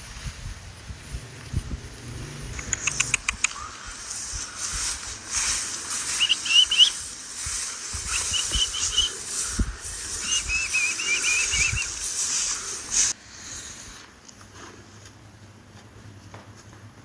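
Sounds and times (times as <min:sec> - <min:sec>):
steady rustling hiss: 0:00.0 - 0:17.0
bird chirping: 0:02.5 - 0:04.8, 0:06.1 - 0:07.0, 0:08.0 - 0:12.9.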